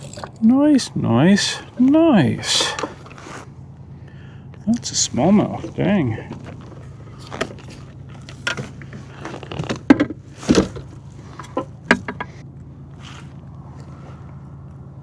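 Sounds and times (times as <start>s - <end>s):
gear clicking and rattling: 0.0s - 3.8s, 4.5s - 14.4s.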